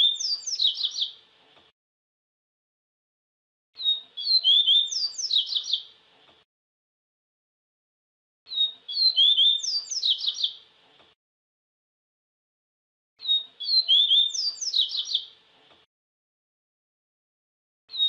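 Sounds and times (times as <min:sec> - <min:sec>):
bird song chirps and whistles: 0:00.0 - 0:01.2, 0:03.8 - 0:05.9, 0:08.5 - 0:10.6, 0:13.2 - 0:15.3.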